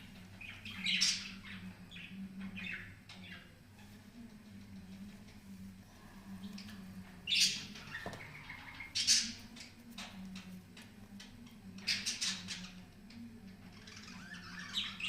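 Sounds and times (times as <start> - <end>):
birds chirping and squawking: 0.0 - 3.6, 6.3 - 10.1, 11.8 - 12.9, 13.6 - 15.0
steady low hum: 0.0 - 15.0.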